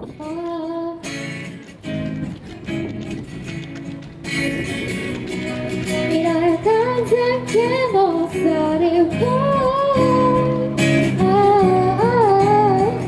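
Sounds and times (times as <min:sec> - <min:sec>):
woman singing: 0:00.0 - 0:01.2, 0:05.9 - 0:13.0
acoustic guitar: 0:00.0 - 0:13.0.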